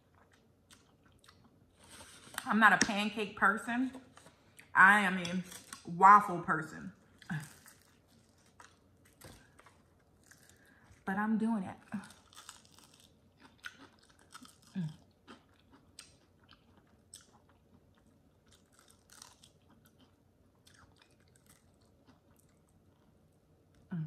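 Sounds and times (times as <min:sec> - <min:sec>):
crunchy chewing: 0:07.1 - 0:11.0, 0:12.0 - 0:23.8.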